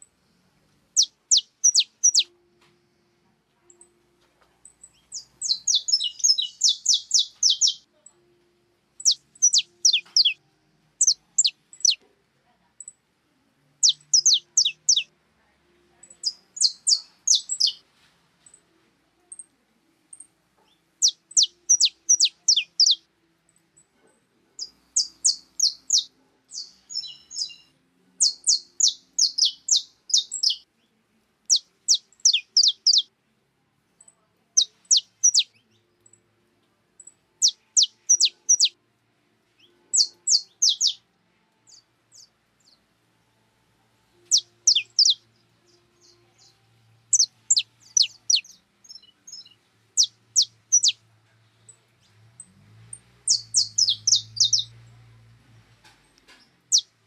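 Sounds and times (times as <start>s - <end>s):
small songbird chirping: 0.9s - 2.4s, 4.6s - 8.2s, 9.0s - 10.4s, 11.0s - 12.0s, 13.8s - 15.1s, 15.9s - 17.8s, 20.1s - 23.9s, 24.6s - 33.1s, 34.0s - 36.2s, 37.0s - 38.8s, 39.5s - 41.0s, 41.6s - 42.8s, 44.1s - 51.0s, 51.6s - 55.2s, 56.1s - 57.0s.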